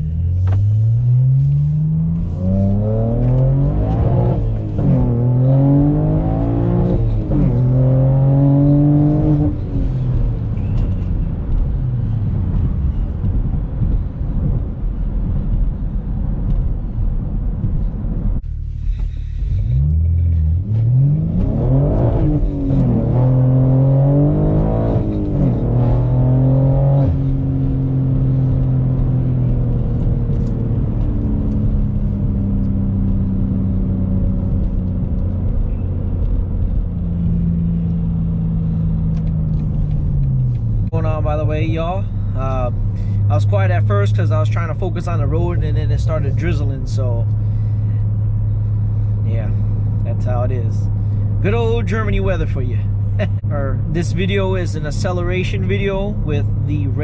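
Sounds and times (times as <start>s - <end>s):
car engine revving through gears: 0.1s - 41.8s.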